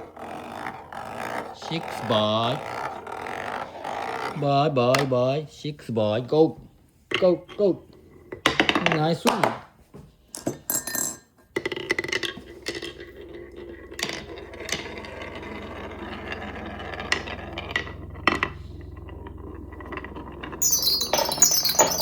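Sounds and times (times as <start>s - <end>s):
high clatter: 20.6s - 22.0s
marbles clicking against track: 20.6s - 22.0s
marbles rolling on wooden track: 20.6s - 22.0s.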